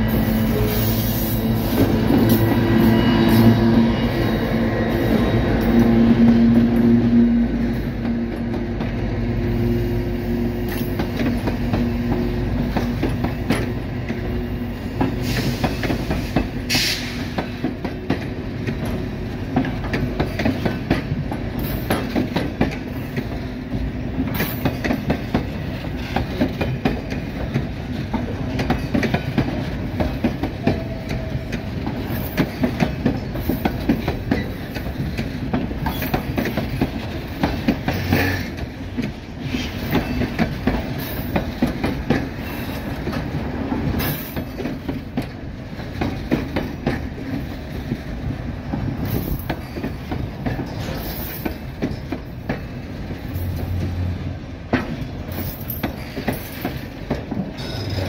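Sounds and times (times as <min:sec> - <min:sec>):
diesel locomotive engine hum: 0:00.0 - 0:58.0
train wheels clattering: 0:00.0 - 0:58.0
wheel squeal: 0:57.6 - 0:58.0.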